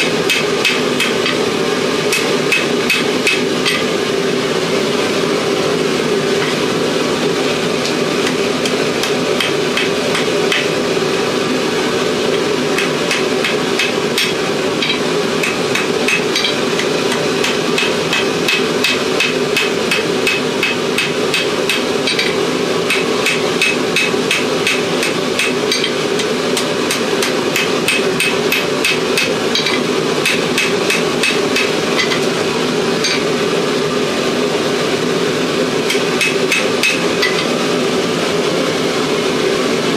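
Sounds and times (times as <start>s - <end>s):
hammer striking steel on anvil: 0.0s - 1.5s, 2.1s - 4.0s, 7.8s - 10.8s, 12.3s - 32.4s, 33.0s - 33.3s, 35.9s - 37.6s
loud steady roar: 0.0s - 39.9s.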